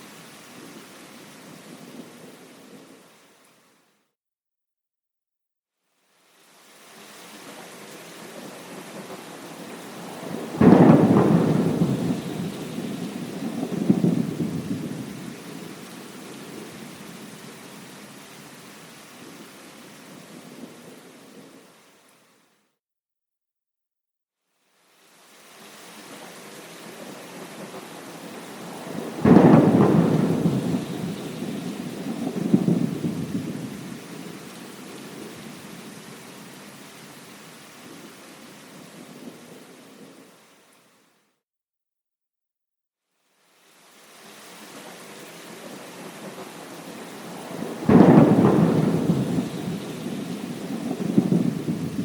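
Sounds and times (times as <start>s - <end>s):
steady rain: 0.0s - 4.0s, 5.8s - 22.7s, 24.5s - 41.3s, 43.1s - 52.0s
thunderclap rolling: 10.1s - 15.3s, 28.6s - 34.1s, 47.2s - 52.0s.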